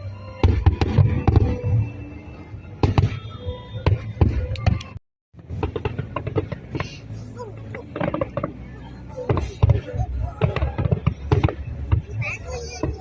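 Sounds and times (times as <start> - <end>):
music playing: 0.0 - 5.0
fireworks bangs and crackles: 0.3 - 13.0.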